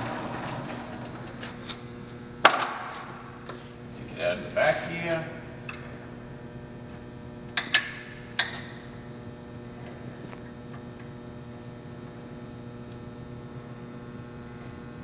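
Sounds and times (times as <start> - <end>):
lathe motor humming: 0.0 - 7.4.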